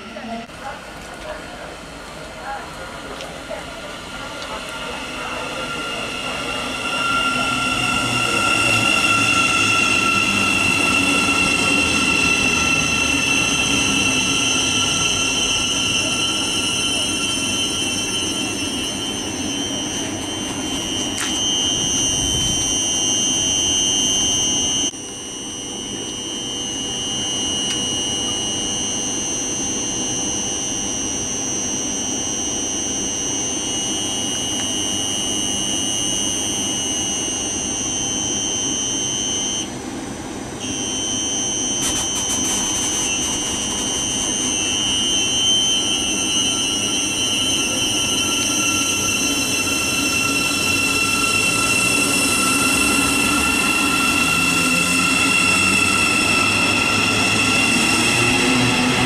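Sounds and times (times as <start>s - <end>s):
electric train high-pitched whine: 0.0s - 59.0s.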